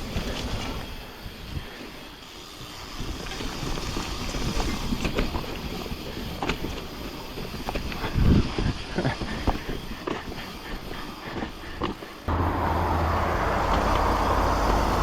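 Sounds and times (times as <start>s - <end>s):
bike rattling and clicking: 0.0s - 12.5s, 13.4s - 15.0s
bike tyre noise: 0.0s - 15.0s.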